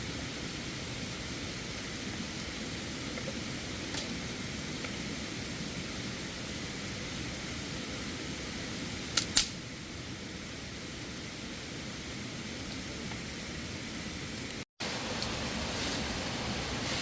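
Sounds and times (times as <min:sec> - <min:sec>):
steady rushing hiss: 0:00.0 - 0:17.0
sharp clicks: 0:09.2 - 0:09.6.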